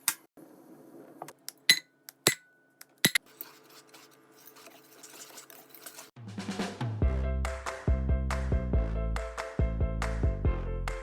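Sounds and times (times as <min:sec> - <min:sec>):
kitchenware clinking: 0:01.7 - 0:03.7.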